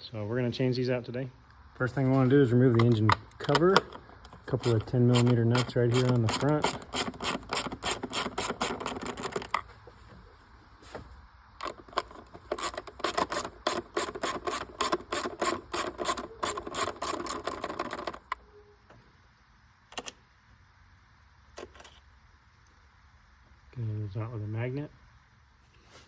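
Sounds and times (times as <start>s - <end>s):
ratchet wrench clicking: 3.5s - 9.5s, 11.6s - 18.4s.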